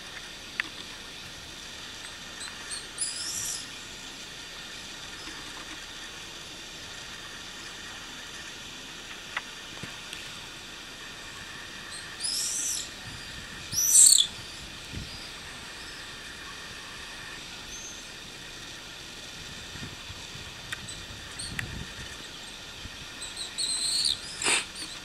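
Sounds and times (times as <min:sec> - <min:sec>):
steady hiss: 0:00.0 - 0:25.0
shrill bird calls: 0:02.7 - 0:03.7, 0:11.9 - 0:12.9, 0:13.7 - 0:14.3, 0:23.2 - 0:25.0.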